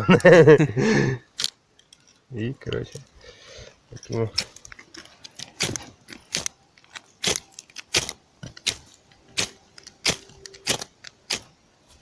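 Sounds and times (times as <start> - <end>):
fire-starter rod scraped by striker: 3.9 - 11.6.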